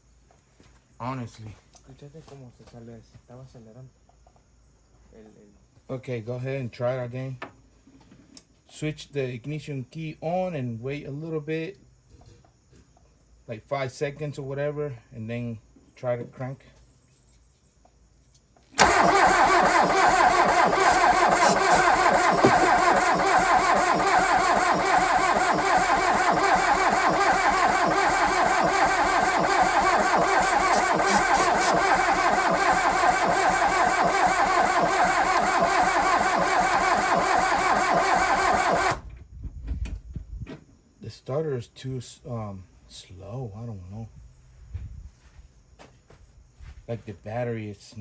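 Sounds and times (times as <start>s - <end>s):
starter motor cranking engine: 18.8s - 39.1s.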